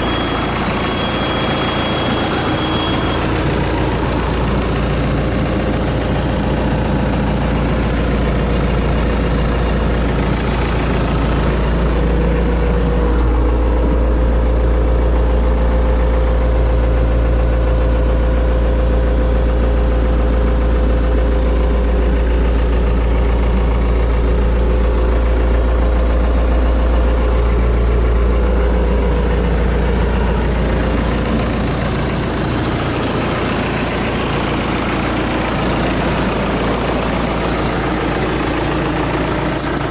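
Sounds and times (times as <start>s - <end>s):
steady whine: 0.0s - 17.4s
tractor diesel engine idling: 0.0s - 39.9s.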